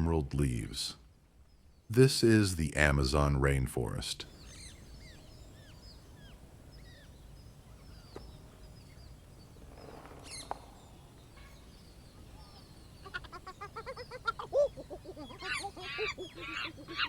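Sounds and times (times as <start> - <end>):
faint bird chirps: 4.3 - 17.0
frogs croaking: 9.8 - 17.0.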